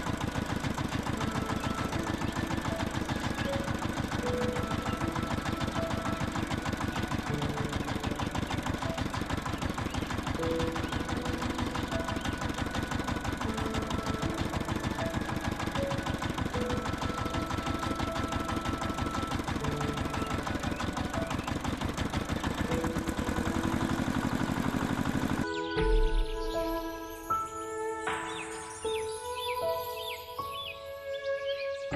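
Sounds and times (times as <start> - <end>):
small model motor knocking: 0.0 - 25.5
small engine chugging: 0.0 - 26.8.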